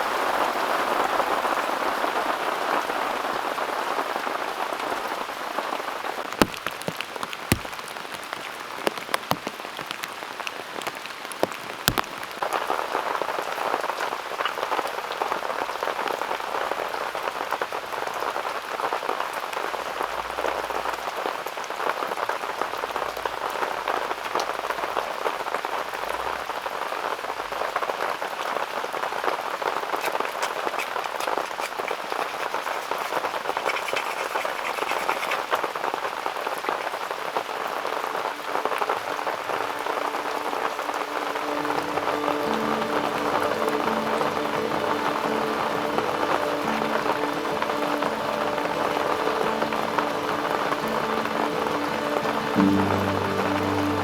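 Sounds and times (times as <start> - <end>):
heavy rain pouring: 0.0 - 54.0
sharp taps: 6.4 - 7.9.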